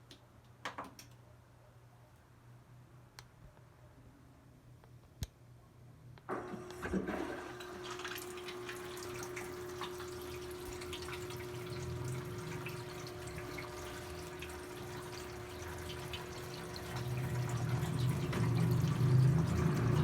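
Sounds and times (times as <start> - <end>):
water running into washing machine: 6.3 - 20.0.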